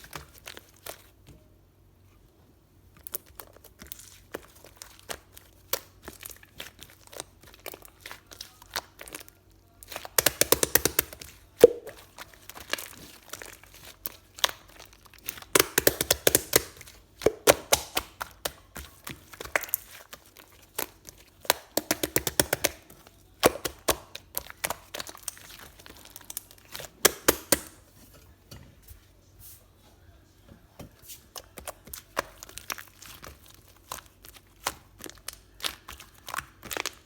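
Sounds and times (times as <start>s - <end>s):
crackling and crinkling clicks: 31.4s - 37.0s.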